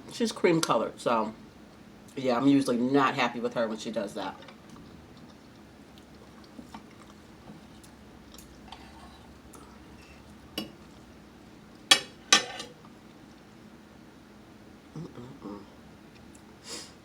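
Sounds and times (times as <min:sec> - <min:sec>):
cutlery clinking on plate: 0:11.9 - 0:12.8.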